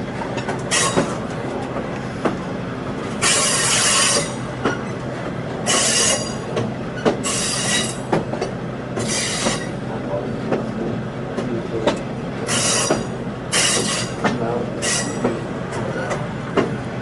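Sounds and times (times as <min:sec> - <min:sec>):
wheels clicking on rail joints: 0:00.0 - 0:02.4, 0:03.1 - 0:16.8
rumble of train cars rolling: 0:00.0 - 0:17.0
train wheels squealing on rail: 0:00.6 - 0:01.2, 0:03.2 - 0:08.2, 0:09.0 - 0:09.8, 0:12.5 - 0:16.3.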